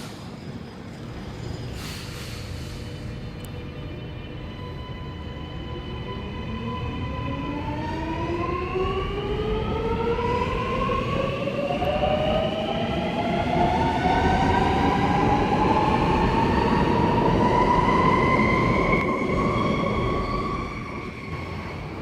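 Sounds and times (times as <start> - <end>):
train wheels rumbling on rails: 0.0 - 5.3.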